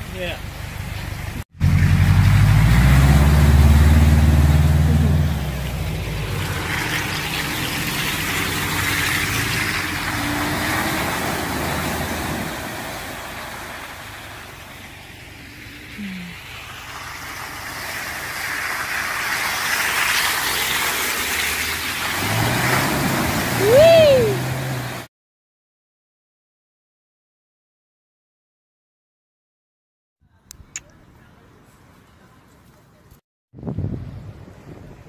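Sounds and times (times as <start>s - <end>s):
off-road vehicle engine running: 0.0s - 25.1s.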